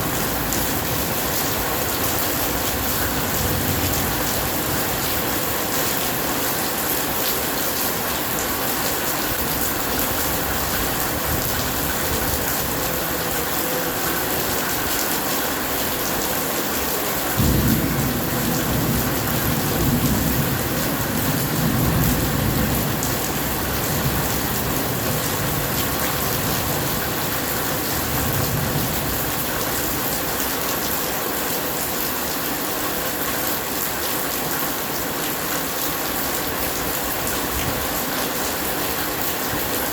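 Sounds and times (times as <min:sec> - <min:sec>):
thunder rumbling: 0:00.0 - 0:06.7, 0:17.4 - 0:29.7
heavy rain hissing: 0:00.0 - 0:31.9.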